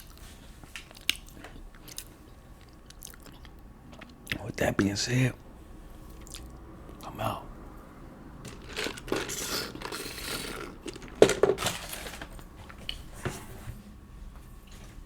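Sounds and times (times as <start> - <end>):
handling rustling: 8.4 - 13.5.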